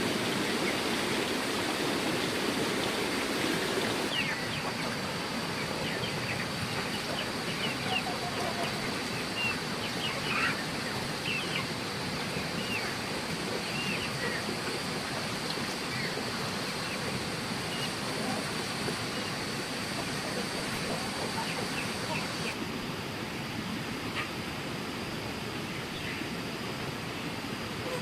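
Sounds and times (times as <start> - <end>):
birds chirping: 3.0 - 14.9, 15.6 - 22.6.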